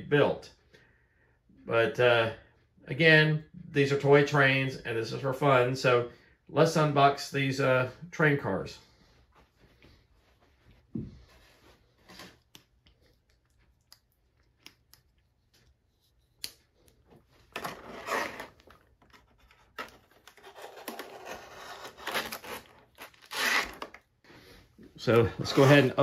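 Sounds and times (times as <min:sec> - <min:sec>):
packaging rustling and tearing: 0:17.5 - 0:24.1.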